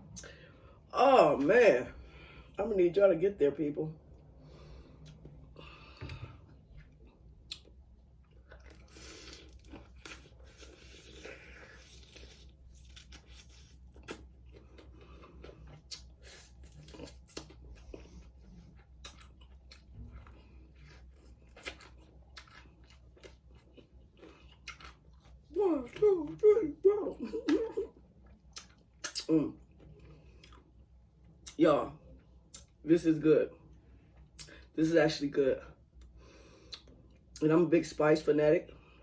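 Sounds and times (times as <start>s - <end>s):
chewing crunchy chicken wings: 6.9s - 26.1s.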